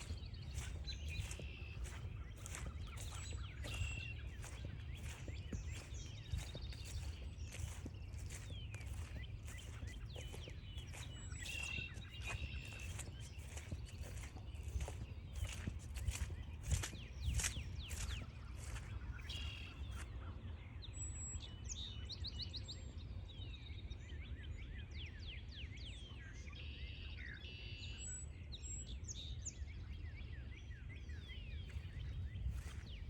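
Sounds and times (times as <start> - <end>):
small birds chirping: 0.0 - 20.2, 31.5 - 33.0.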